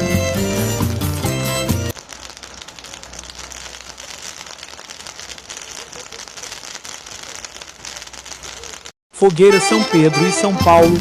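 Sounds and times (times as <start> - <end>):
bonfire crackling: 0.0 - 9.0.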